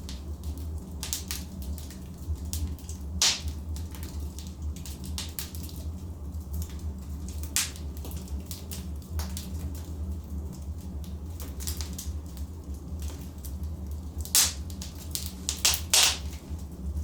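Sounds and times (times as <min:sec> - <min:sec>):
logs crackling in fireplace: 0:00.0 - 0:17.0
low rumble of flames: 0:00.0 - 0:17.0
sharp pops of fire: 0:02.5 - 0:04.0, 0:07.5 - 0:08.3, 0:14.2 - 0:16.5.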